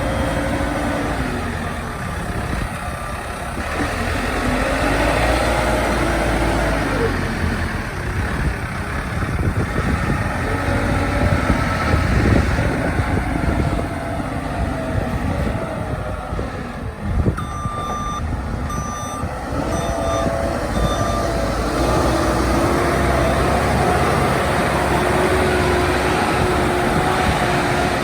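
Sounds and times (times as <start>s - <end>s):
diesel engine running: 0.0s - 28.0s
reversing alarm beeping: 17.4s - 21.7s.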